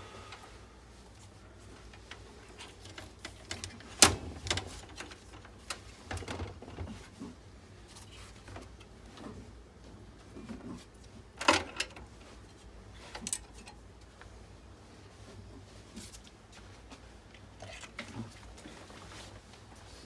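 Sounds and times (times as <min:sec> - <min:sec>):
clicks and knocks of pc parts: 0:02.7 - 0:06.9.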